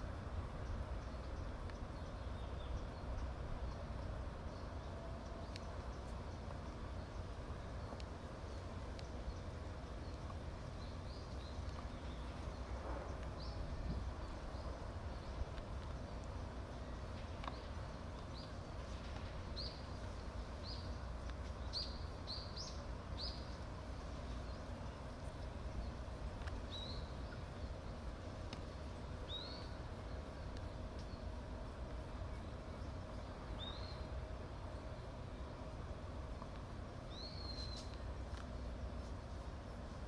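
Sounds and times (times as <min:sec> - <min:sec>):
low background rumble: 0:00.0 - 0:40.0
bird high chirps: 0:37.1 - 0:38.0.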